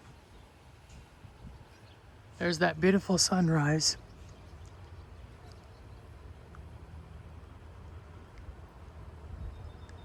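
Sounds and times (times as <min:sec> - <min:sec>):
faint outdoor hiss: 0:00.0 - 0:10.0
wind buffeting microphone: 0:00.0 - 0:10.0.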